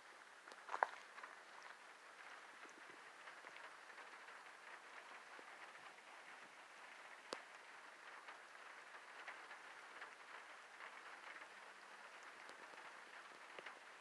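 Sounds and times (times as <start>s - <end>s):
rain patter: 0.0s - 14.0s.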